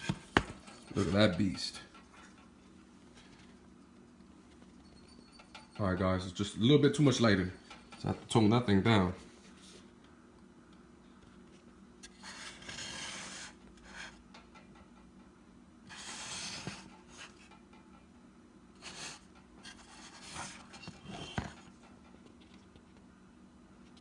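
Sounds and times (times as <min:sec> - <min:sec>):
rubbing and scraping of tweeter: 0:04.4 - 0:06.0, 0:12.0 - 0:14.8, 0:15.8 - 0:17.7, 0:18.8 - 0:22.2.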